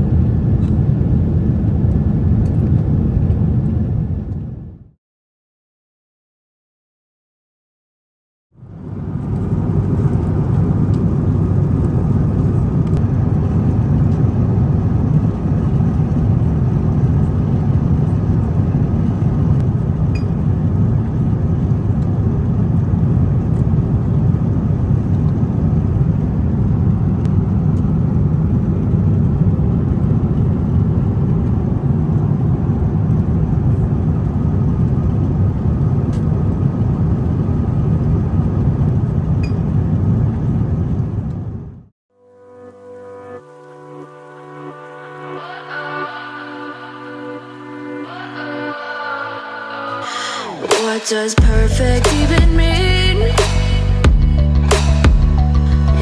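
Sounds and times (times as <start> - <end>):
airliner cabin rumble: 0.0 - 5.0, 8.6 - 41.9.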